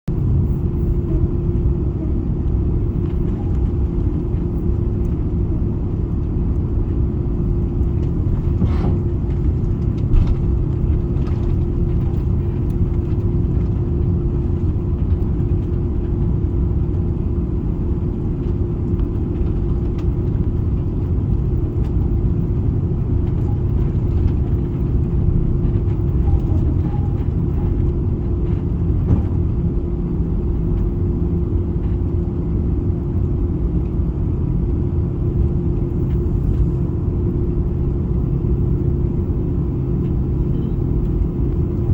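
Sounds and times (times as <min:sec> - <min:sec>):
airliner cabin rumble: 0:00.0 - 0:41.9
constant hum: 0:00.0 - 0:41.9.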